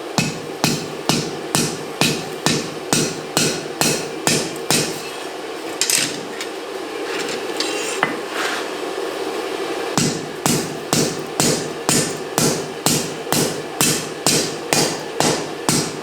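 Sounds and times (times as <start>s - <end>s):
steady hum: 0.0s - 16.0s
hammer striking steel on anvil: 0.1s - 5.1s, 10.0s - 16.0s.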